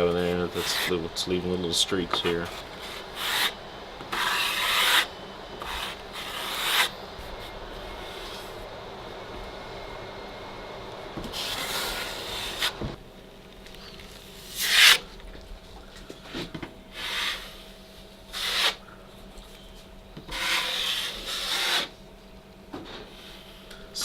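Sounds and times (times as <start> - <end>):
hand sanding drywall: 0.0 - 1.1, 2.2 - 8.6, 11.2 - 12.9, 14.4 - 15.0, 16.9 - 18.8, 20.3 - 22.0.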